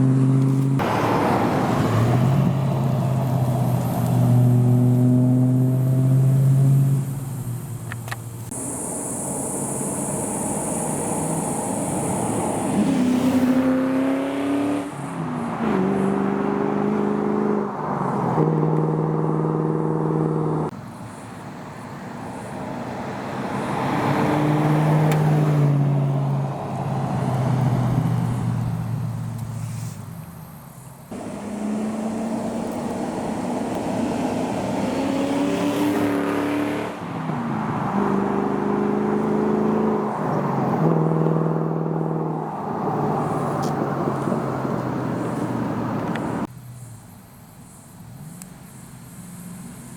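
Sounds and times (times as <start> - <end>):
engine accelerating through gears: 31.1 - 37.0.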